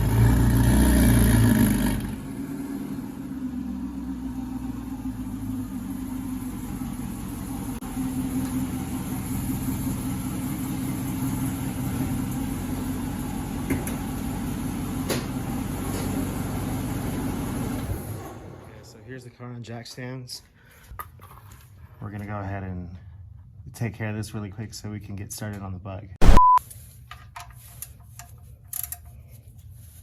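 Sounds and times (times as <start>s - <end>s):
car engine idling: 1.6s - 17.8s.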